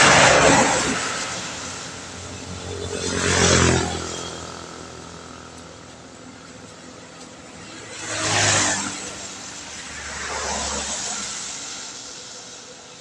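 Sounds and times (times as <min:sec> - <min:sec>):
vehicles passing on wet road: 0:00.0 - 0:13.0.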